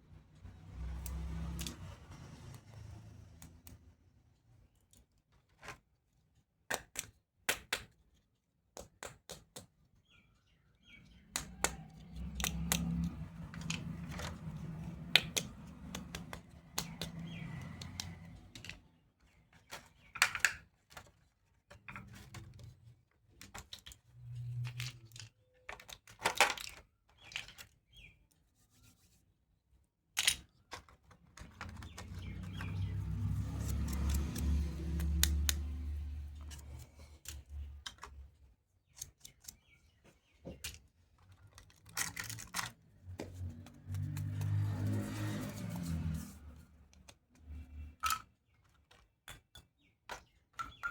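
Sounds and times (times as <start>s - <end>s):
plastic toy pieces clicking: 11.2s - 18.9s, 19.6s - 22.7s, 23.4s - 27.8s, 30.2s - 38.3s, 40.6s - 42.8s, 47.9s - 50.9s.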